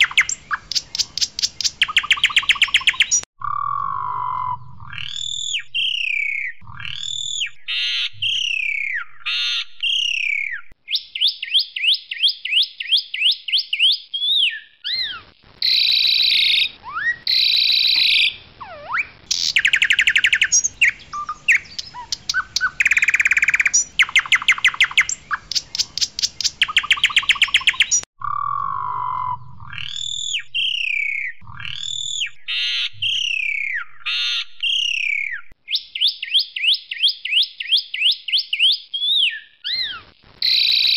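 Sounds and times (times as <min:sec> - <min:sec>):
starling singing whistles and trills: 0:00.0 - 0:40.9.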